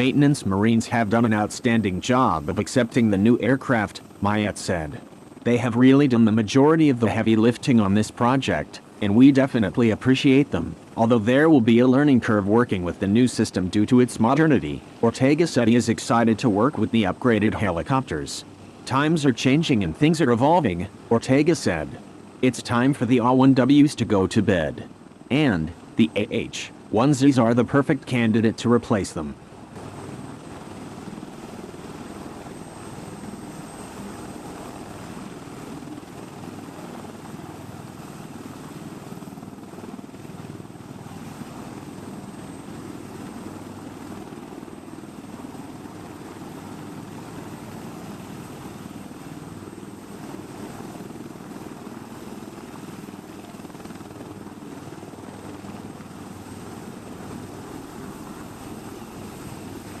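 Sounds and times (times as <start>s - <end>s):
helicopter rotor and engine: 0.0s - 60.0s.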